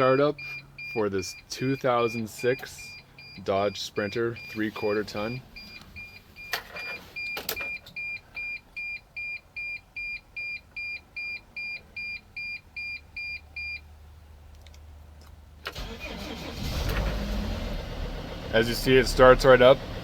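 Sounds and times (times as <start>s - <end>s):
dashboard warning chime beeping: 0.0s - 13.8s
engine cranking: 15.6s - 17.6s.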